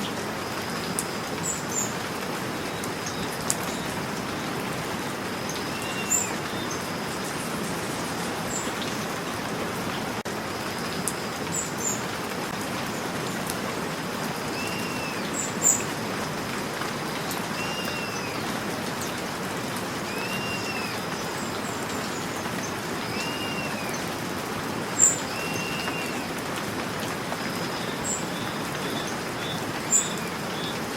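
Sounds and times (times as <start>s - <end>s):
steady rain: 0.0s - 30.9s
arched bird calls: 5.2s - 9.0s, 14.4s - 16.0s, 17.2s - 19.3s, 20.0s - 24.2s, 24.9s - 30.9s.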